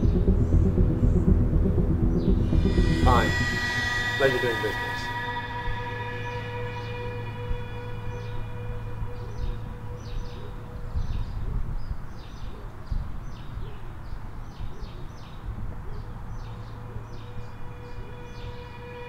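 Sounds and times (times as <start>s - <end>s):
electronic music drone: 0.0s - 11.4s, 16.6s - 19.0s
steady low rumble: 0.0s - 12.1s.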